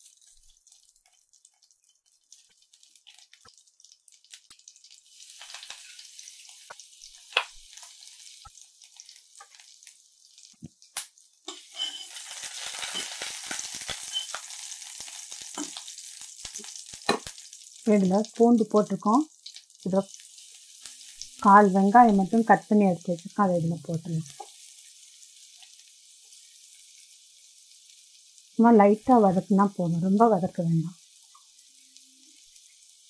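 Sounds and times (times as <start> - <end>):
garlic sizzling in butter: 0.0 - 33.0
spoon stirring a pan: 5.2 - 9.8, 11.4 - 14.6, 15.4 - 15.9, 24.2 - 27.1.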